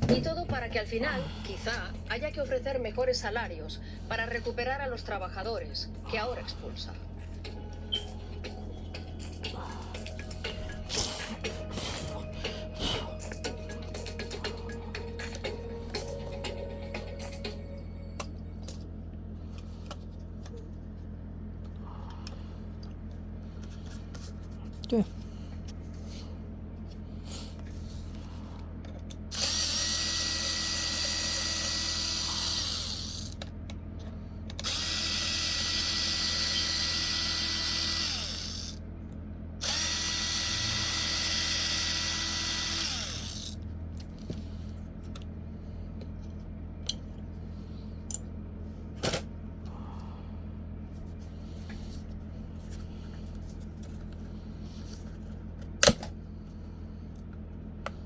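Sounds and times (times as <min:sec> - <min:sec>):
power drill motor whining: 0:29.3 - 0:33.4, 0:34.5 - 0:38.8, 0:39.6 - 0:43.6.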